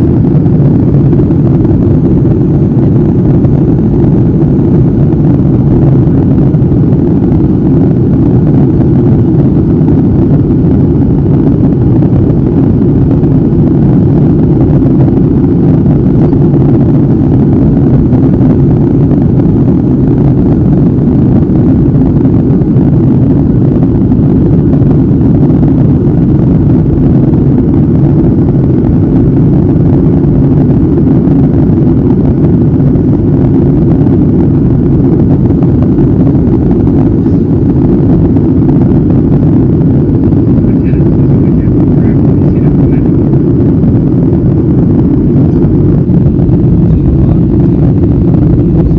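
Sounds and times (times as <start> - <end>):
airliner cabin engine rumble: 0.0 - 48.9.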